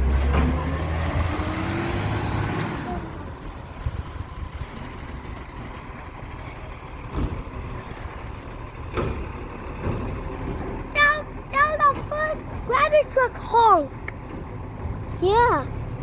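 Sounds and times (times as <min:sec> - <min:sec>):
truck engine running: 0:00.0 - 0:16.0
faint high squeal: 0:03.2 - 0:06.7.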